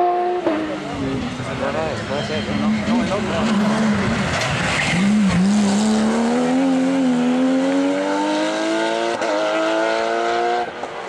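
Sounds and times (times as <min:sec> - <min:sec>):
car engine revving under load: 0:02.6 - 0:11.0.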